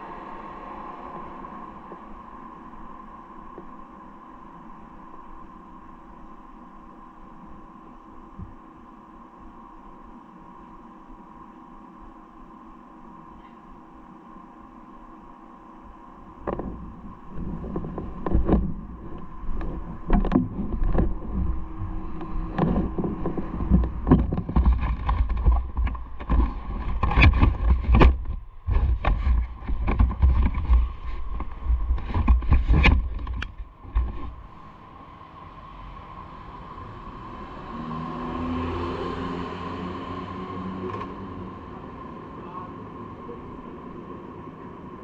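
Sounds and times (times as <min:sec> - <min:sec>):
heavy low rumble: 0:16.3 - 0:45.0
knocks and thumps on microphone: 0:22.5 - 0:34.4.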